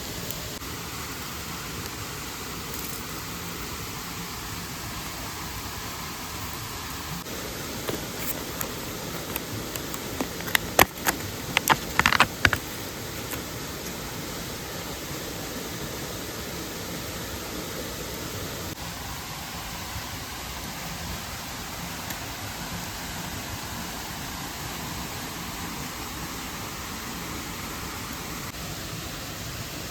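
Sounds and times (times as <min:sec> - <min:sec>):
stream and waterfall rushing: 0:00.0 - 0:29.9
sharp clicks and knocks: 0:07.8 - 0:12.7.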